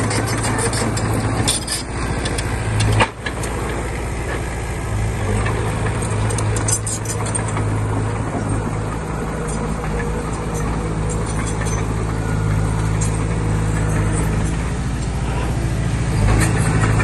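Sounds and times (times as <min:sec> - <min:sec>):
metallic clinks and rattles: 0:00.0 - 0:03.6, 0:05.9 - 0:07.8, 0:09.4 - 0:14.8
diesel engine humming: 0:00.0 - 0:17.0.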